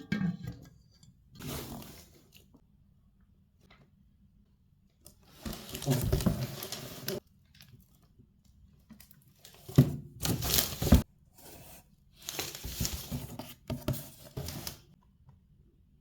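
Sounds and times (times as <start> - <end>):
packaging rustling: 5.3 - 7.2, 12.2 - 13.6.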